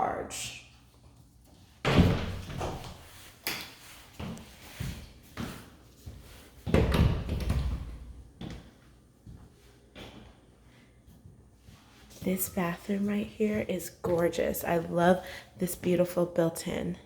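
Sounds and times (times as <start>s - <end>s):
heavy door thuds: 1.8s - 3.0s
doors opening and shutting: 6.6s - 8.1s.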